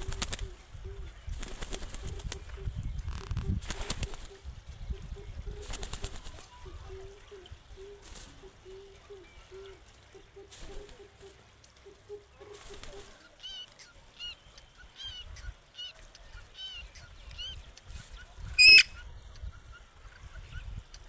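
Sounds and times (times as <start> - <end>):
parrot harsh squawk: 18.6 - 18.9
parrot chirping: 18.6 - 19.0.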